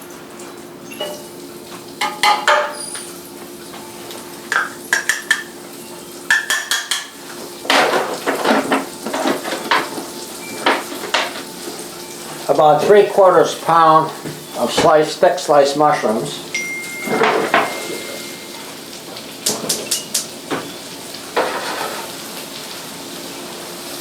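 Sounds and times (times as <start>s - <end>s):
faint steady hum: 8.7s - 19.0s
metal utensil scraping a pan: 21.4s - 22.2s.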